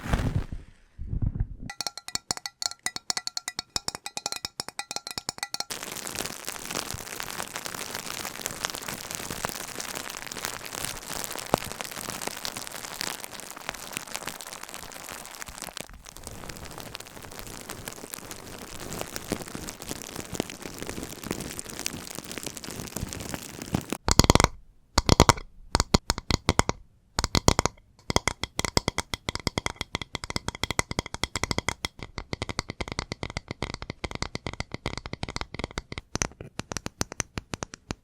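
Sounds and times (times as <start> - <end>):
rapid even tapping: 1.7 - 5.8, 24.0 - 38.0
dense crackling close to microphone: 1.7 - 38.0.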